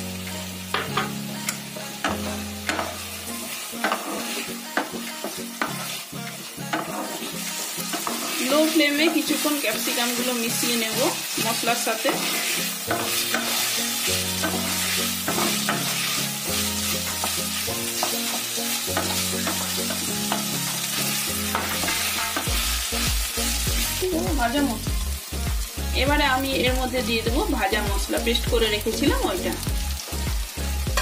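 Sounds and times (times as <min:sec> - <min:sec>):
vegetables sizzling in oil: 0:00.0 - 0:31.0
spatula stirring and scraping: 0:02.1 - 0:09.4, 0:11.1 - 0:22.6.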